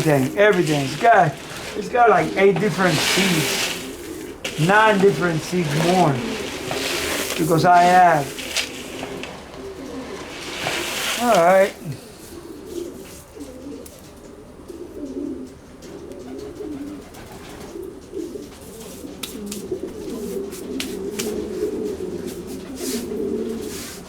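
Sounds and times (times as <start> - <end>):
sharp clicks and rustles: 0.0 - 11.8
pigeons cooing: 0.0 - 24.0.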